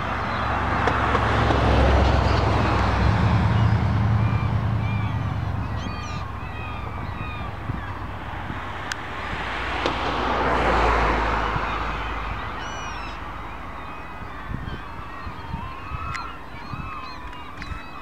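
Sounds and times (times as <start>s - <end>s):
vehicle passing: 0.0s - 14.4s
low traffic rumble: 0.0s - 18.0s
bird calls and chirps: 2.0s - 8.2s, 11.4s - 18.0s.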